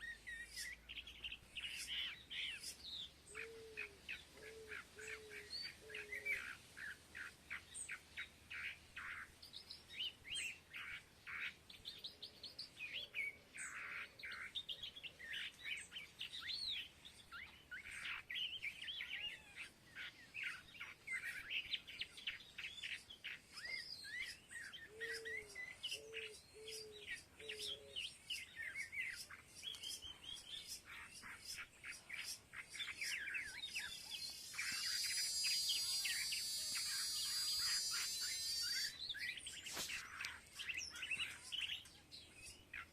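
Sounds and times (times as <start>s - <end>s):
flock of small birds chirping: 0.0s - 42.9s
short low-pitched bird calls: 33.7s - 39.2s.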